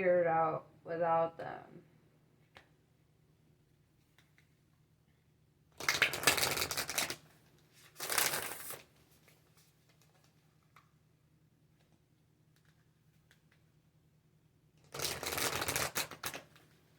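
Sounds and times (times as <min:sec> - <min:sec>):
cards being shuffled: 0:05.8 - 0:07.2, 0:07.8 - 0:10.8, 0:14.9 - 0:16.7.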